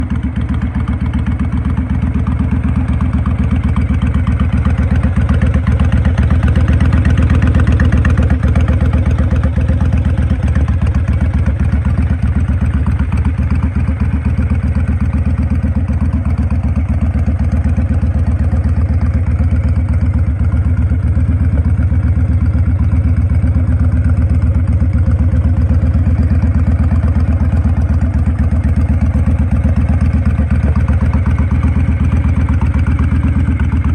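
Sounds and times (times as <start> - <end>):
motorcycle engine idling: 0.0 - 33.9.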